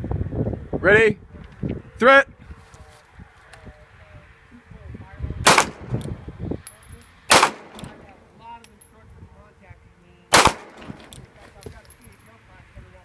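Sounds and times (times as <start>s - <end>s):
pistol shots: 5.4s - 6.0s, 7.3s - 8.2s, 10.3s - 11.3s.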